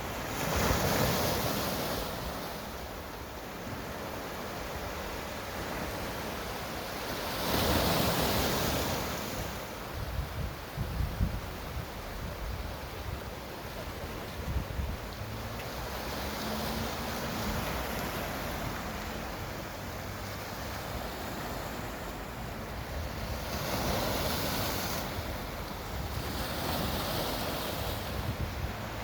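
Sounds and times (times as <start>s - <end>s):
ocean surf breaking: 0.0s - 29.0s
wind rumbling on microphone: 7.4s - 29.0s.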